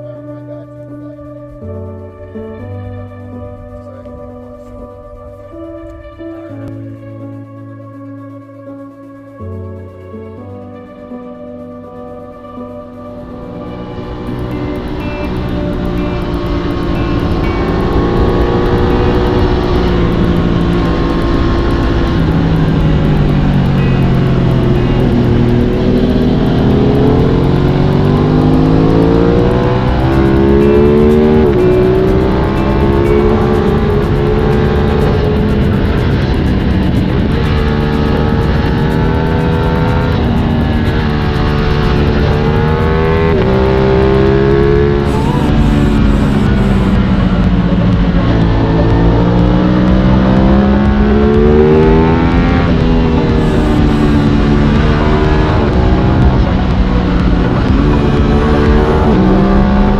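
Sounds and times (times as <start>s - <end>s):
faint background music: 0.0s - 59.9s
motorcycle engine running: 11.9s - 59.9s.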